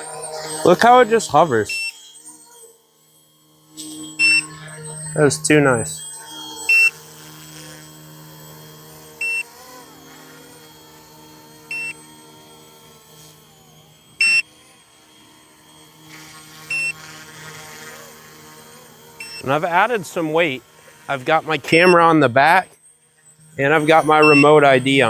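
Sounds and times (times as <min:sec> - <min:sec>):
toy helicopter rotor hum: 0:00.0 - 0:25.0
short high beeps: 0:00.8 - 0:02.1, 0:04.2 - 0:04.6, 0:06.7 - 0:06.9, 0:09.2 - 0:09.4, 0:11.7 - 0:12.0, 0:14.2 - 0:14.5, 0:16.7 - 0:17.0, 0:19.2 - 0:22.6, 0:23.6 - 0:25.0.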